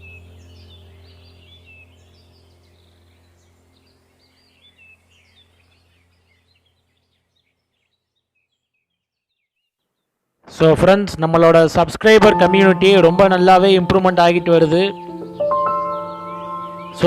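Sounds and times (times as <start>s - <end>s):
low steady hum: 0.0s - 8.2s, 10.2s - 17.0s
lovebirds chirping: 0.0s - 10.2s, 12.2s - 17.0s.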